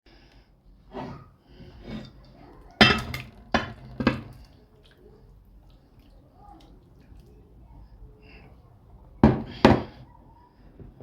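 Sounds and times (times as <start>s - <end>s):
dishes knocking and clinking: 2.8s - 4.4s, 9.2s - 10.0s.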